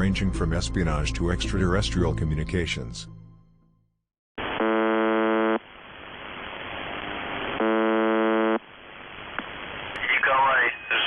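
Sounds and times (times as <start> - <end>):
harsh buzzing tone: 4.4 - 5.7, 6.3 - 8.7
radio hiss: 4.4 - 11.0.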